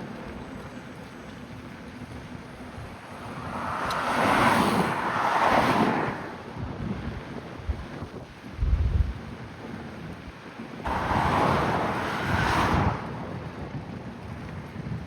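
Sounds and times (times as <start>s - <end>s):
car passing by: 2.7s - 6.6s, 10.8s - 13.6s.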